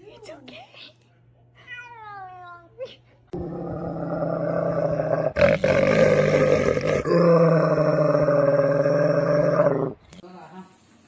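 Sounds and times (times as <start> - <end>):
animal growling: 3.3 - 10.2.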